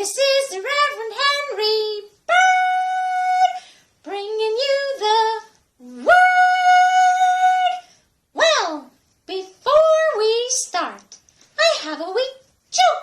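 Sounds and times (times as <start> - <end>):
high-pitched voice singing: 0.0 - 7.8.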